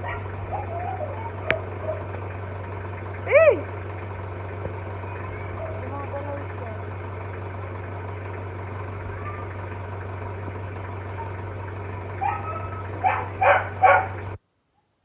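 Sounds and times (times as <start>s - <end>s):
dog barking: 0.0s - 2.2s, 10.9s - 14.2s
steady low hum: 0.0s - 14.4s.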